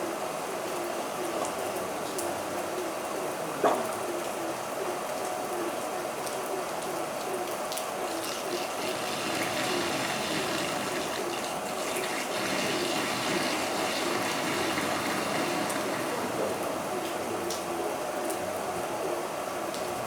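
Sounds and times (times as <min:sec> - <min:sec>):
heavy rain: 0:07.9 - 0:18.8.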